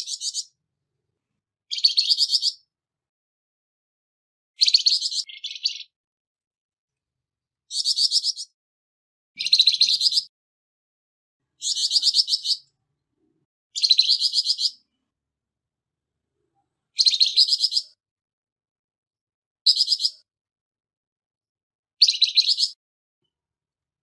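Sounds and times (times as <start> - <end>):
songbird harsh chattering call: 7.7 - 8.5, 9.4 - 10.3, 11.6 - 12.6, 13.8 - 14.8.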